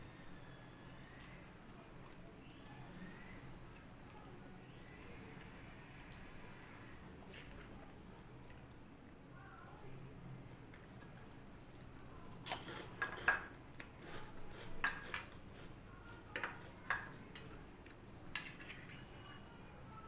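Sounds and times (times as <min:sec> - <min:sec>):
dishes and utensils clinking: 0:12.4 - 0:17.6, 0:18.3 - 0:19.4.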